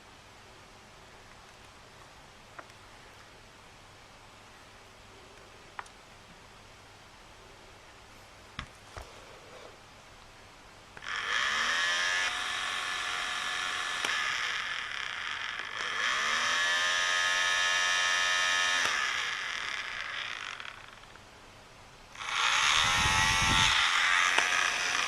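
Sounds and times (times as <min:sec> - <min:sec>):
small fan motor whirring: 0:11.0 - 0:21.2, 0:22.1 - 0:25.0.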